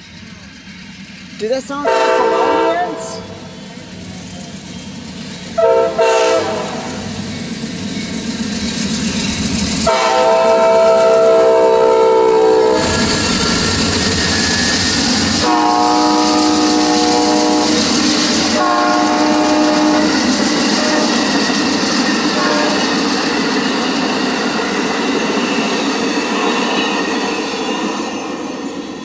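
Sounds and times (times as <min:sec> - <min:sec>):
locomotive rumble: 0:00.0 - 0:29.0
train horn blasts: 0:01.8 - 0:03.4, 0:05.6 - 0:07.0, 0:09.8 - 0:13.0, 0:15.4 - 0:21.2, 0:22.4 - 0:22.8
train wheels clattering on rails: 0:03.3 - 0:29.0.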